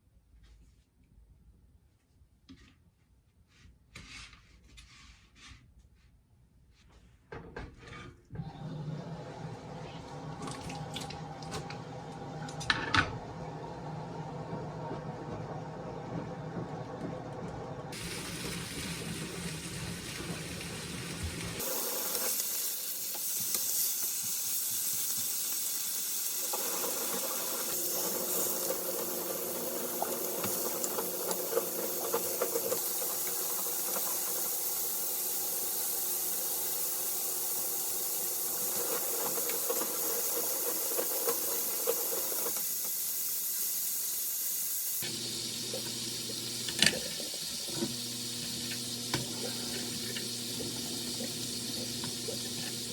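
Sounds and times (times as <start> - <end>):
food sizzling in a frying pan: 17.9 - 52.9.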